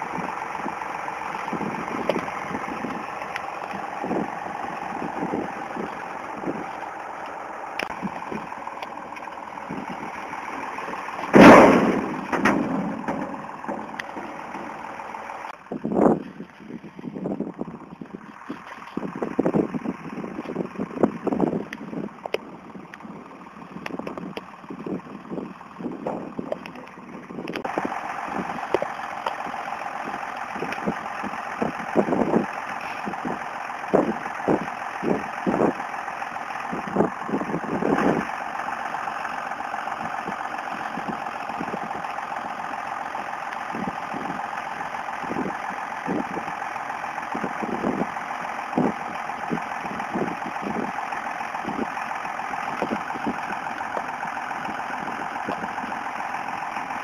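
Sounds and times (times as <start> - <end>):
tractor engine running: 0.0 - 57.0
low thumps: 11.2 - 14.9.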